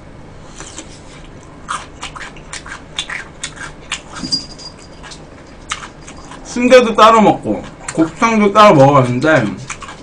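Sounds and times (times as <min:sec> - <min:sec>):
person chewing food: 0:00.5 - 0:10.0
wet mouth clicks and smacks: 0:00.8 - 0:04.2.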